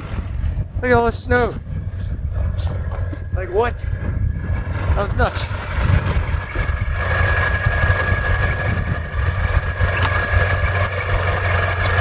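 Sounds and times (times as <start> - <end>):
diesel pickup engine idling: 0.0 - 12.0.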